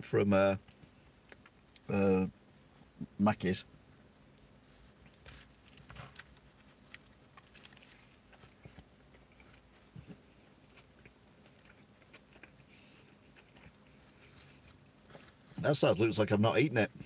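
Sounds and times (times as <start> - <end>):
chewing clicks and smacks: 5.0 - 14.4.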